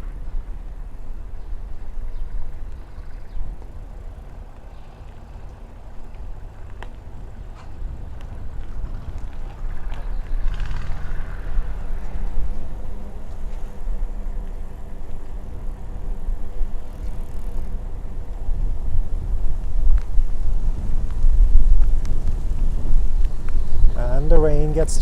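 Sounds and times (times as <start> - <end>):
vehicle engine running: 0.0 - 25.0
wind buffeting microphone: 0.0 - 25.0.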